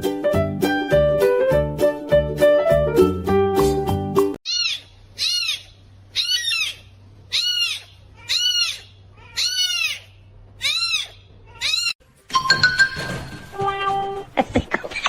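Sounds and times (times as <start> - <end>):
animal calling high cries: 4.4 - 12.0.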